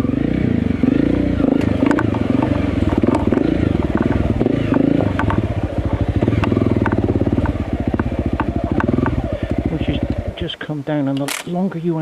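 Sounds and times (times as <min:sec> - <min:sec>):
motorcycle engine revving: 0:00.0 - 0:10.9
sharp clicks and knocks: 0:01.5 - 0:05.5, 0:06.2 - 0:09.2.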